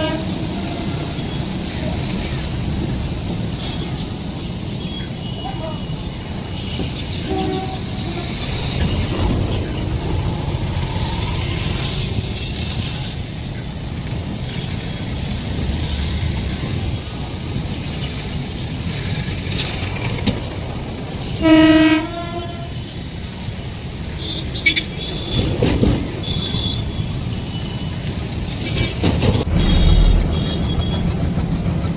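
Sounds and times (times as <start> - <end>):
train horn blast: 0.0 - 1.2, 7.2 - 8.4, 21.3 - 22.8
train rumbling: 0.0 - 31.9.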